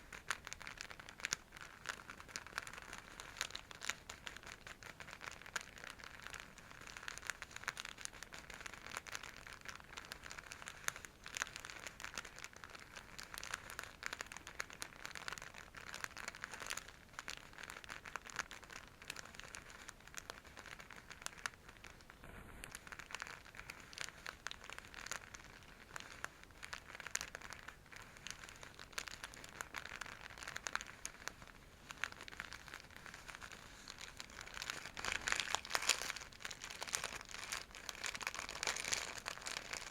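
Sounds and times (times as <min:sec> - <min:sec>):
bag crinkling when scrunched: 0:22.7 - 0:39.9.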